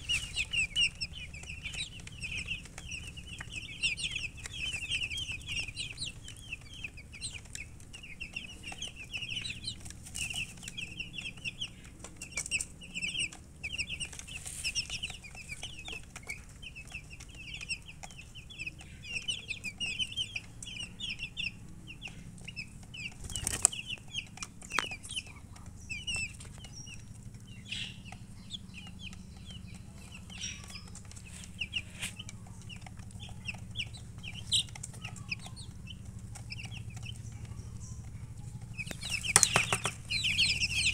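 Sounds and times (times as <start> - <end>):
chicks peeping: 0.0 - 40.9.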